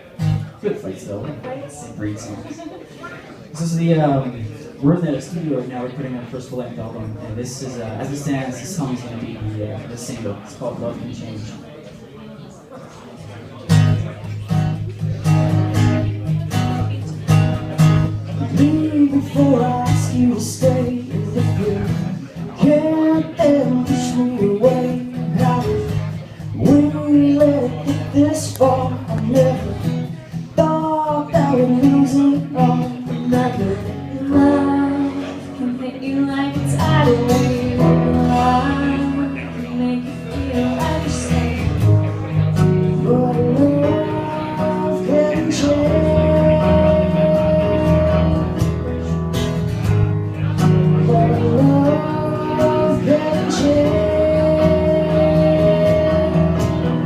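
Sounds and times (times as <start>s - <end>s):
strummed acoustic guitar: 0.0s - 2.6s, 3.5s - 11.5s, 13.2s - 57.0s
person singing long notes: 22.5s - 49.0s, 50.8s - 57.0s.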